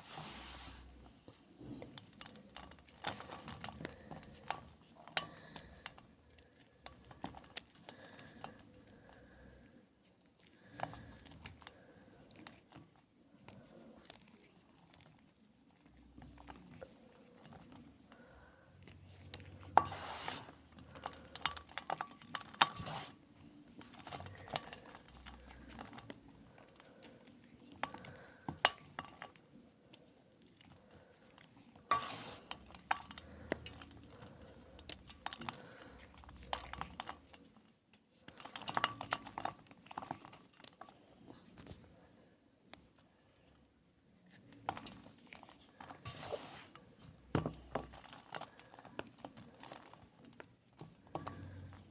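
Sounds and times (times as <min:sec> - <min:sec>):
chalk ball crunching and cracking: 0:10.4 - 0:41.2.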